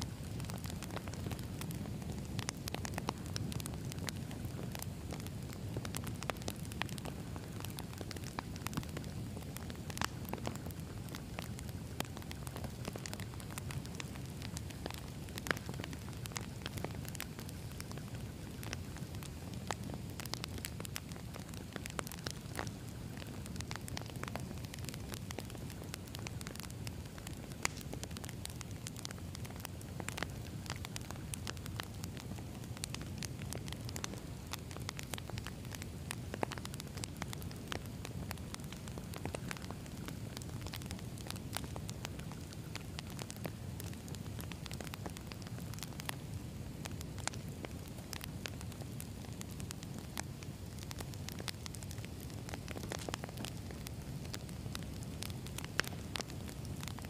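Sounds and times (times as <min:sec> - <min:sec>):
low rumble of flames: 0:00.0 - 0:57.0
wood crackling and popping: 0:00.0 - 0:57.0.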